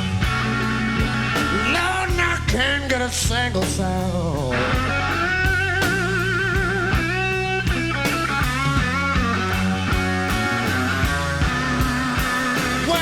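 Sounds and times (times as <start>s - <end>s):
bass: 0.0s - 13.0s
drums: 0.0s - 13.0s
electric guitar bent notes: 0.0s - 13.0s.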